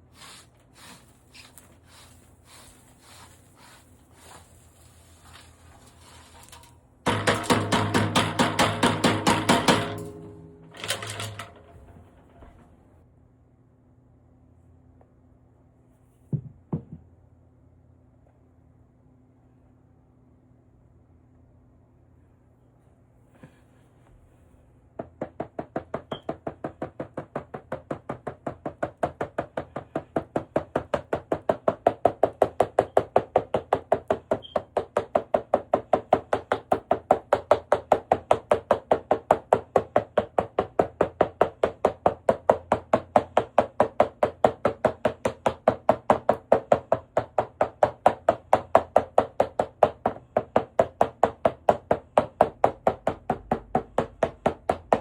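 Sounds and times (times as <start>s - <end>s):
rapid hard knocks: 7.1s - 11.6s, 25.0s - 55.0s.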